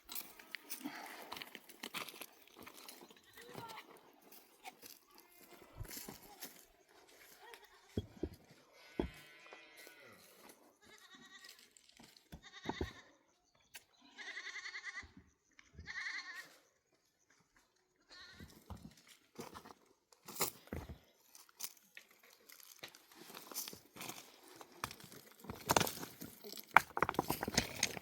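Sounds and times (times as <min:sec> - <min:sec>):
goats bleating: 0:12.4 - 0:13.0, 0:14.1 - 0:15.1, 0:15.8 - 0:16.4.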